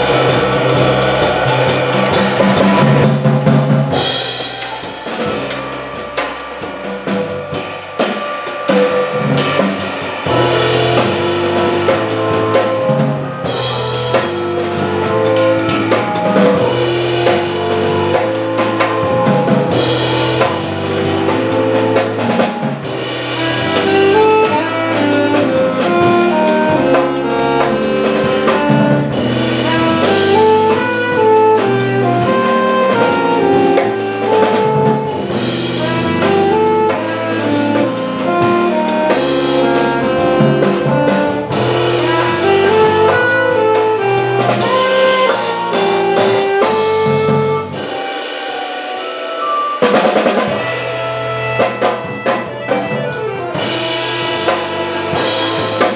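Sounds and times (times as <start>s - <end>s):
bass drum: 0.0s - 48.1s, 49.8s - 55.9s
organ playing melody and bass: 0.0s - 55.9s.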